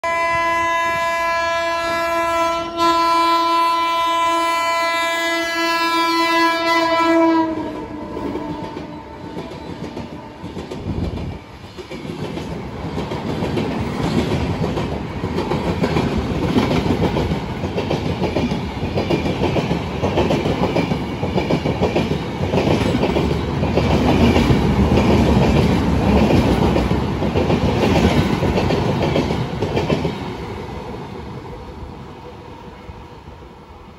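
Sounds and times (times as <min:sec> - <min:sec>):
locomotive horn blast: 0:00.0 - 0:10.5
train coaches rushing past: 0:03.5 - 0:33.9.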